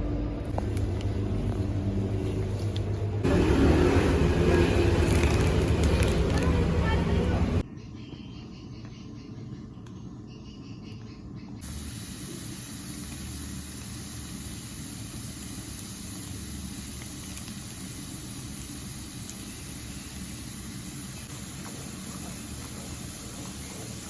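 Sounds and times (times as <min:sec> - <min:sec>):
steady hiss: 0:11.6 - 0:24.0.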